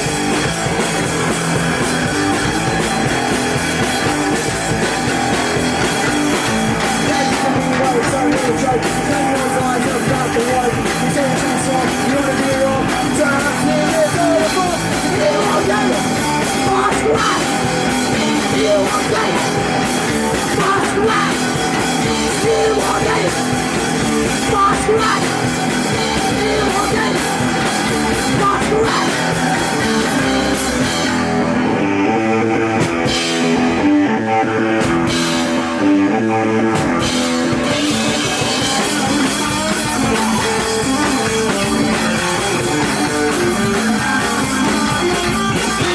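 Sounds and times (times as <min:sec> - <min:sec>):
low rhythmic guitar riff: 0:00.0 - 0:45.9
punk rock band playing: 0:00.0 - 0:45.9
person singing: 0:06.4 - 0:31.2, 0:37.6 - 0:45.9.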